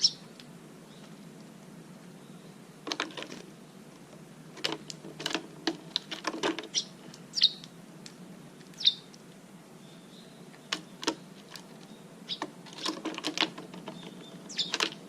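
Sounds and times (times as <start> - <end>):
small bird chirping: 0.0 - 0.3, 6.7 - 7.8, 8.6 - 9.1, 9.8 - 12.8, 13.8 - 15.0.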